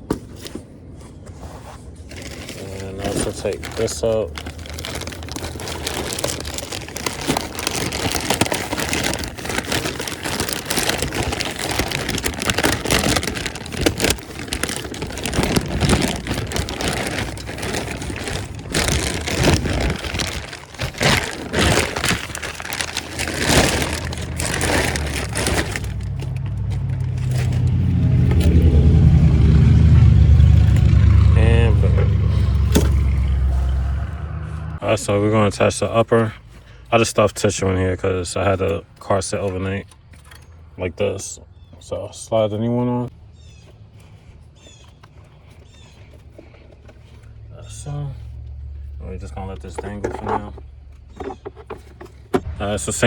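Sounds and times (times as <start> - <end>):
packaging rustling and crinkling: 0.2 - 29.2, 43.1 - 47.5, 48.1 - 52.5
vehicle engine drone: 1.9 - 53.0.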